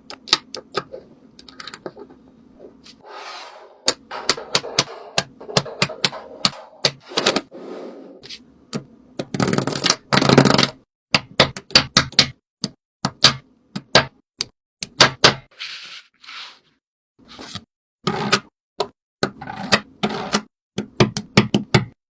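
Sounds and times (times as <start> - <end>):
rustling scrape: 2.8 - 3.8, 15.6 - 16.8.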